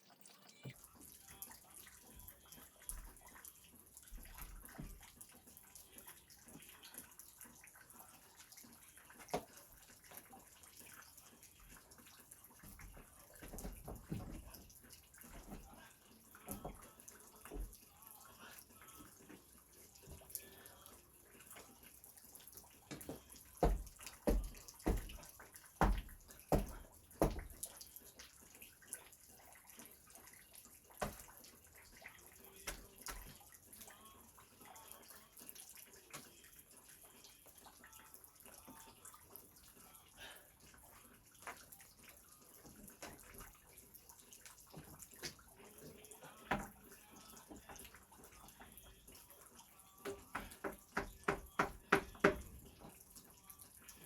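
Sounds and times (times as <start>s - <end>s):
knocks and clatter of work: 12.6s - 15.8s, 22.9s - 27.7s, 50.0s - 52.9s.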